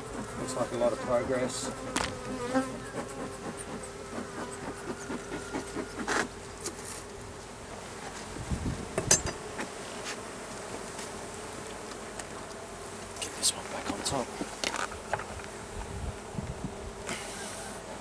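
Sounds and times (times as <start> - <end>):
bees buzzing: 0.0 - 18.0
knocks of wooden hive parts: 1.9 - 2.3.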